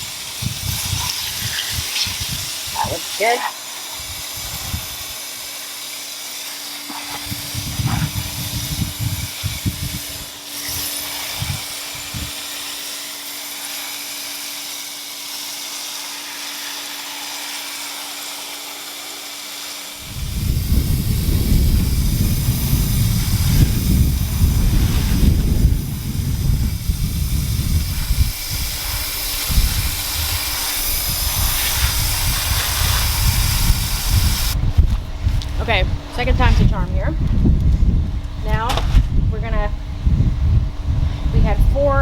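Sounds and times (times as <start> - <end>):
wind buffeting microphone: 0.0 - 3.1, 4.0 - 5.2, 7.0 - 12.6, 20.0 - 42.0
steady outdoor hiss: 0.0 - 42.0.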